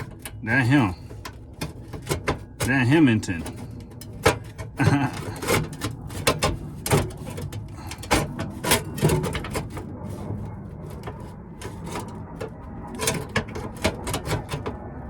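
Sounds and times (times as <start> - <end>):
metal parts and tools clanking: 0.0 - 15.0
steady low hum: 0.0 - 15.0.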